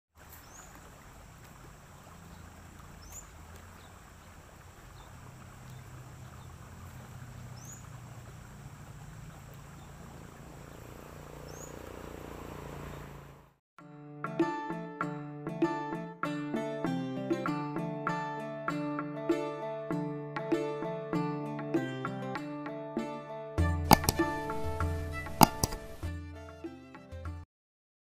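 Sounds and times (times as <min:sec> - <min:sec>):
bird's short rising chirp: 0:10.6 - 0:13.2.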